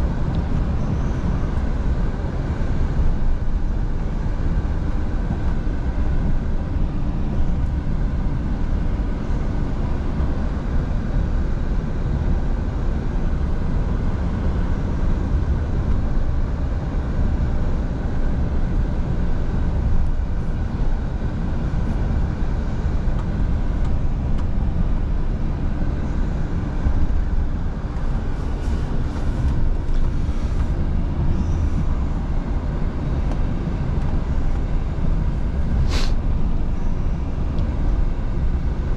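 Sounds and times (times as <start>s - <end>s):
truck engine drone: 0.0s - 38.9s
tyre and road noise: 12.8s - 38.9s.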